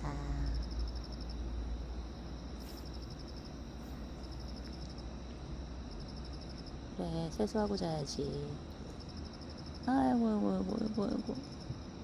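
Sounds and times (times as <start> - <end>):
crickets chirping: 0.0 - 12.0
low steady rumble: 0.0 - 12.0.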